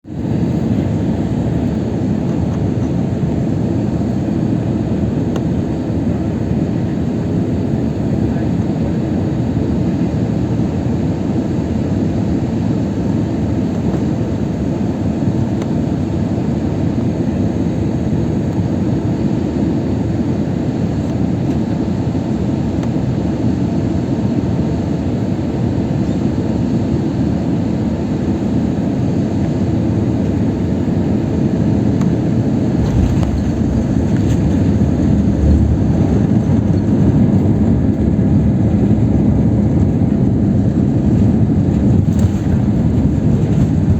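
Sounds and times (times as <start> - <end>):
airliner cabin engine rumble: 0.1 - 43.9
low thumps: 32.7 - 37.4.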